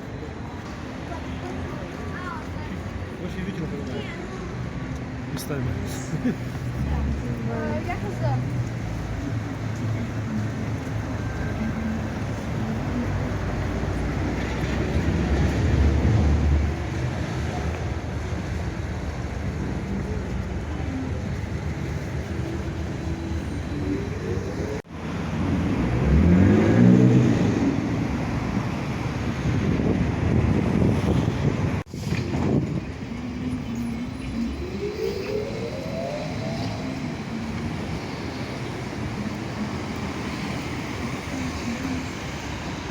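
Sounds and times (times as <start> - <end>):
street traffic rumble: 0.0 - 42.9
passing vehicle motor whine: 8.6 - 42.9.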